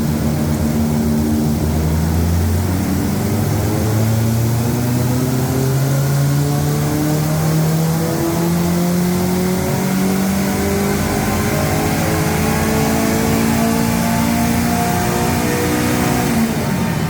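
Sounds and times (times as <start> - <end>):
race car engine revving: 0.0 - 17.0.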